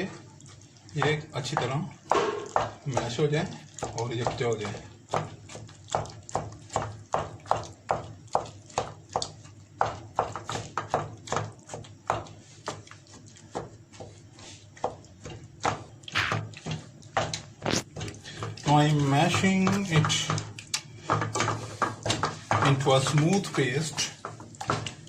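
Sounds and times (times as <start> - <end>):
utensil knocking against pot: 1.0 - 3.2, 18.4 - 25.0.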